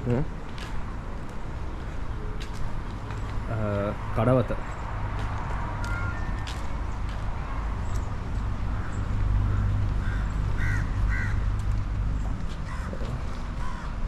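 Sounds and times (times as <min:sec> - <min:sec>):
crows cawing: 0:05.8 - 0:06.6, 0:08.7 - 0:11.5, 0:12.6 - 0:14.0.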